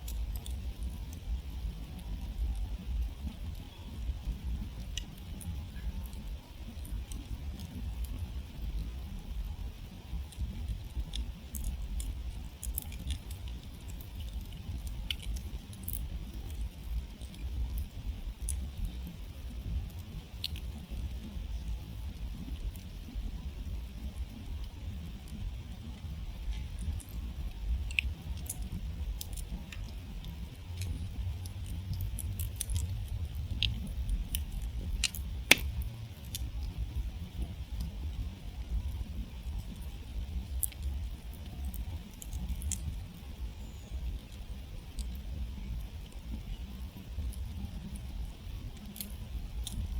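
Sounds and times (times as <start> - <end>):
campfire crackling: 0.0 - 49.9
low steady rumble: 0.0 - 49.9.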